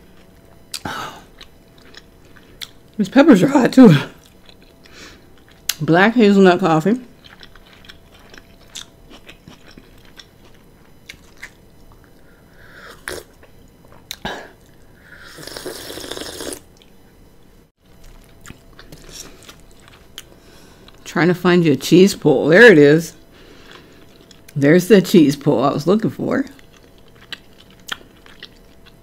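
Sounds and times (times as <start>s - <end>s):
wet chewing clicks: 7.2s - 12.1s, 18.0s - 20.3s, 26.6s - 29.0s
slurping hot coffee: 15.2s - 16.6s.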